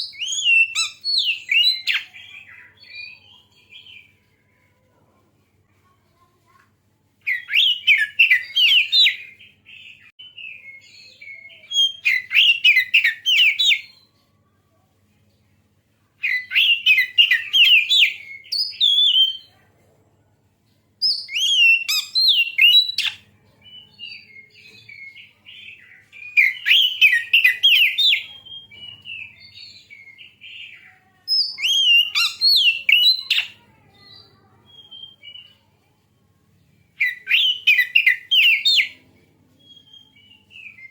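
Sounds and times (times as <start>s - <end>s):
magpie-robin singing warbling whistles: 0.0s - 3.1s, 7.3s - 9.4s, 16.2s - 19.5s, 21.0s - 23.2s, 26.2s - 30.3s, 31.3s - 33.6s, 37.0s - 39.0s.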